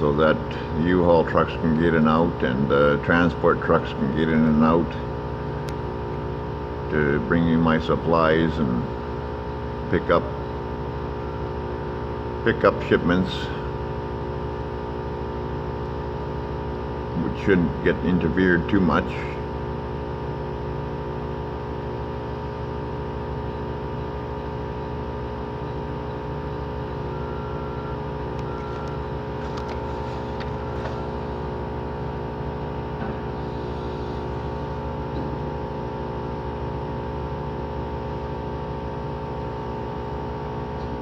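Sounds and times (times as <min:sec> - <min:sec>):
engine idling: 0:25.8 - 0:36.0.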